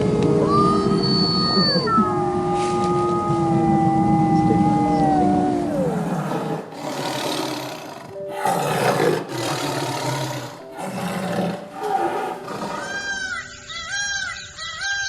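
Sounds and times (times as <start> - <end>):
big cat roaring and growling: 2.0 - 13.0.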